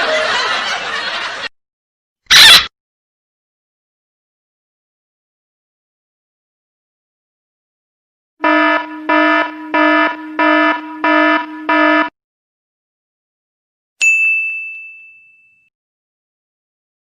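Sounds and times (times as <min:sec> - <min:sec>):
electronic alarm buzzer beeping: 0:08.4 - 0:12.1
bright bell ding: 0:14.0 - 0:15.7.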